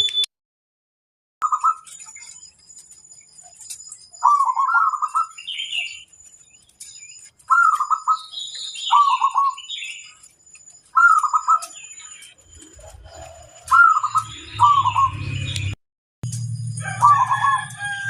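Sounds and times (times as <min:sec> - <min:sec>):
thin bird chirps: 0:01.4 - 0:15.8
dove stuttering coos: 0:12.4 - 0:15.2, 0:17.0 - 0:18.0.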